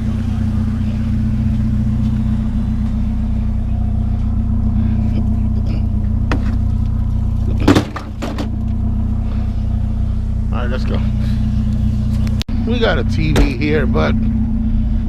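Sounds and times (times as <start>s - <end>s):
truck engine running: 0.0s - 15.0s
sharp clunk: 7.6s - 8.5s.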